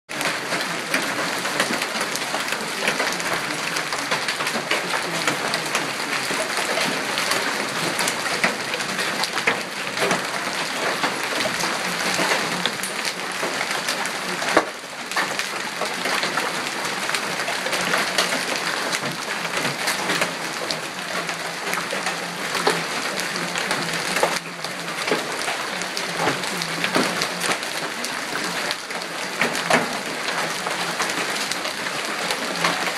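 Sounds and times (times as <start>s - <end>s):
hail falling: 0.1s - 32.9s.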